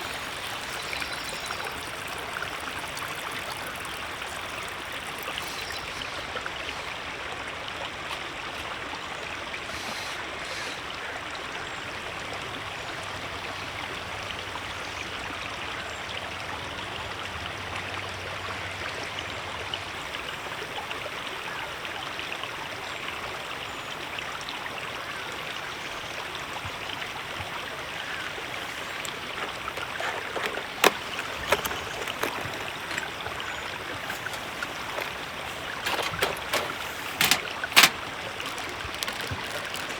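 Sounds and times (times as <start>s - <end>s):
river water flowing over rocks: 0.0s - 39.9s
sharp clicks or knocks: 34.0s - 39.8s.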